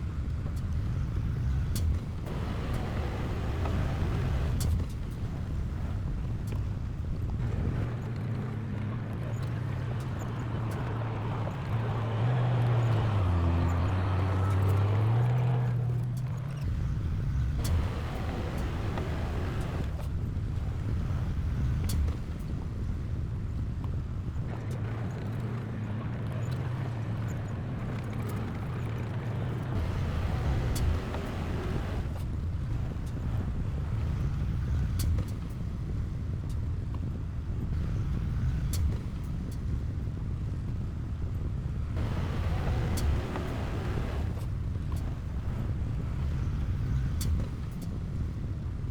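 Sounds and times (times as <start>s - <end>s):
diesel engine running: 0.1s - 6.3s, 16.6s - 21.7s, 29.7s - 34.8s, 42.0s - 48.3s.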